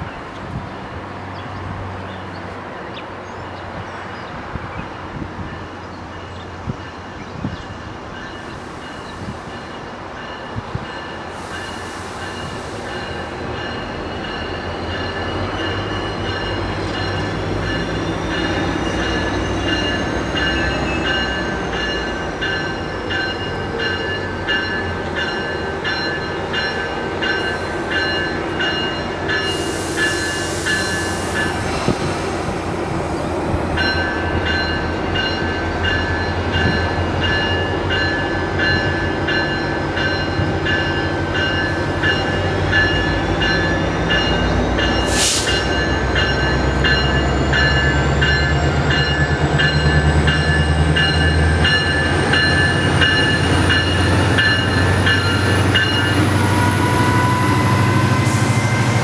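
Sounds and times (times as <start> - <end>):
train rumble: 0.0 - 59.0.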